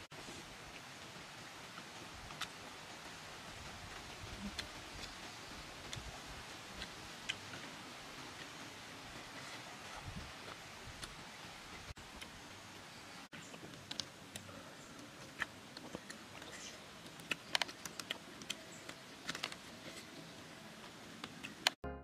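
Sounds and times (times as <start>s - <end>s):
steady low hiss: 0.0s - 21.8s
person chewing and lip smacking: 15.2s - 19.6s.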